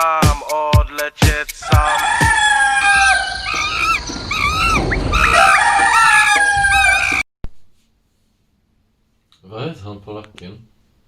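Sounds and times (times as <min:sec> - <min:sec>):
dog howling: 0:01.6 - 0:07.2
dog yelping: 0:01.7 - 0:07.2.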